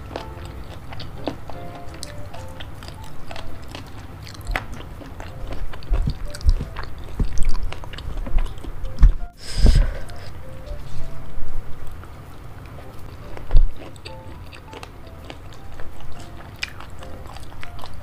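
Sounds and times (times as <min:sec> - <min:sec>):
close chewing with wet clicks: 0:00.0 - 0:09.4, 0:11.8 - 0:18.0
low thumps: 0:04.5 - 0:11.7.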